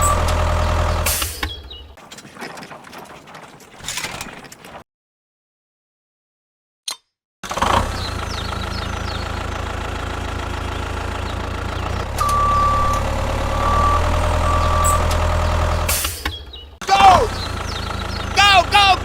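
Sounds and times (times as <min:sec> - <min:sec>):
heavy vehicle engine idling: 0:08.1 - 0:19.0.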